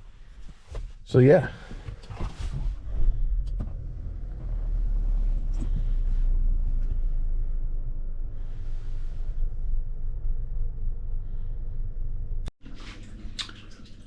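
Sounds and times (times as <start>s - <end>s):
low rumble: 2.5s - 12.5s.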